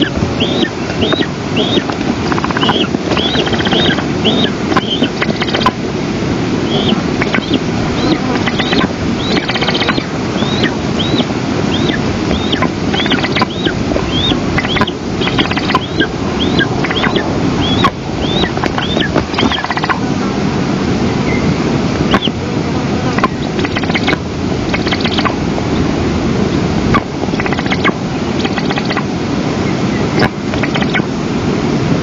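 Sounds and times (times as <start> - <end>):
eagle chick begging calls: 0.0 - 5.8, 6.6 - 20.0, 22.1 - 22.4, 23.2 - 25.4, 26.9 - 29.1, 30.0 - 31.1
wind rumble on microphone: 0.0 - 32.0.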